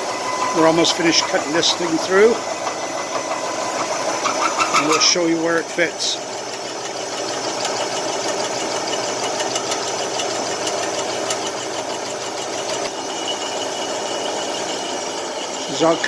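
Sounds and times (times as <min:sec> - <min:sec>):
high whine: 0:00.0 - 0:06.2
milling machine cutting metal: 0:00.0 - 0:16.0.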